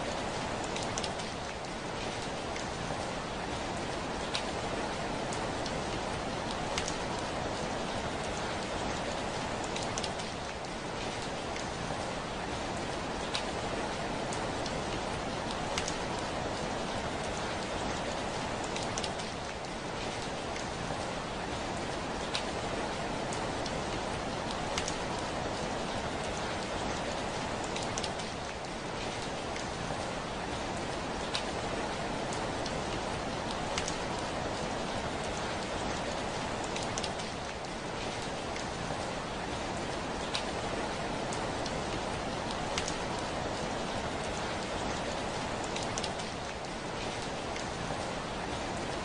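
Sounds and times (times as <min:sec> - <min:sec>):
heavy rain on a window: 0:00.0 - 0:49.0
raindrops ticking on window glass: 0:32.3 - 0:34.4, 0:42.4 - 0:43.4.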